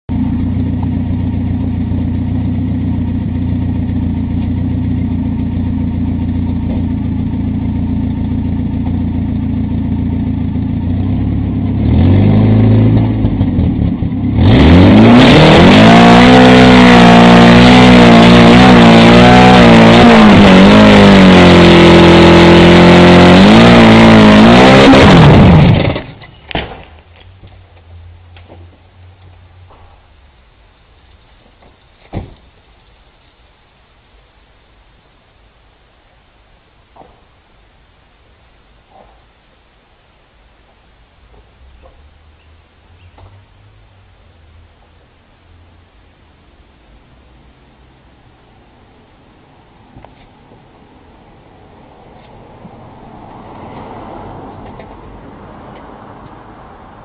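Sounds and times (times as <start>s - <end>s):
car engine revving: 0.1s - 26.2s.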